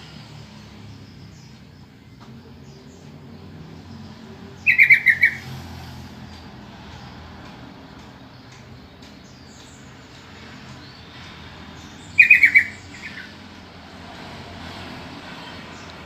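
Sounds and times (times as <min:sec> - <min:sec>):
bird chattering call: 0:04.6 - 0:05.5, 0:12.1 - 0:13.4.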